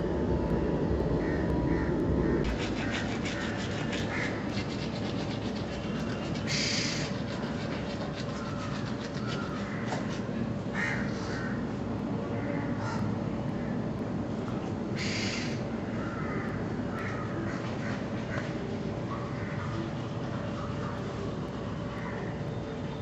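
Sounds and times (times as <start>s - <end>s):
steady background noise: 0.0s - 23.0s
birds calling: 1.2s - 11.6s, 15.0s - 22.5s.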